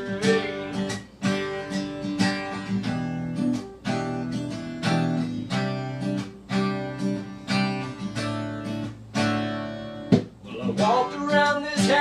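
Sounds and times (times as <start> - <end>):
person singing: 0.0 - 0.9, 10.4 - 12.0
acoustic guitar strumming: 0.0 - 12.0.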